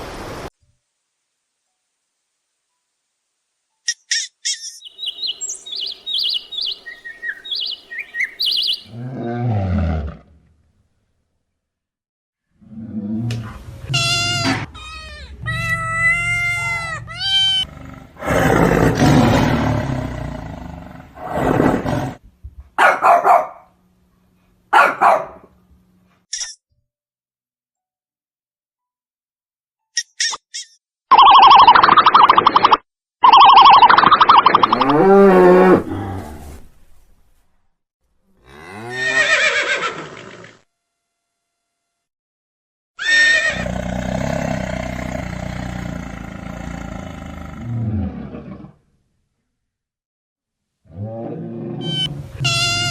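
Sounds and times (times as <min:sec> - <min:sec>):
high-pitched animal cries: 0:04.8 - 0:09.0, 0:38.9 - 0:40.0, 0:43.0 - 0:43.7, 0:51.8 - 0:52.9
animal calling: 0:04.8 - 0:09.1, 0:33.2 - 0:36.0
loud rough animal roar: 0:08.8 - 0:10.4, 0:16.6 - 0:22.2, 0:34.7 - 0:36.5, 0:38.4 - 0:40.6, 0:43.2 - 0:48.8, 0:50.9 - 0:52.4.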